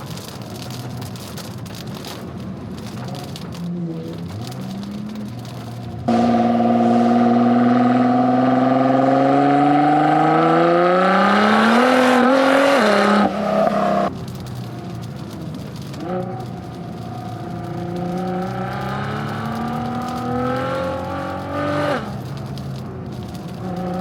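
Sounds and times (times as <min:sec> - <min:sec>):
car engine accelerating hard: 0:04.2 - 0:14.1, 0:15.2 - 0:22.6.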